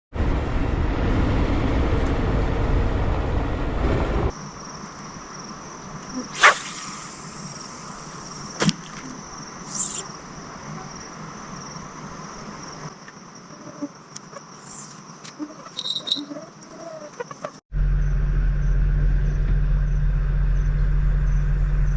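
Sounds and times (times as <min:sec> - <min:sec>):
loud rush of noise: 0:00.2 - 0:04.3
insect trill: 0:04.3 - 0:21.9.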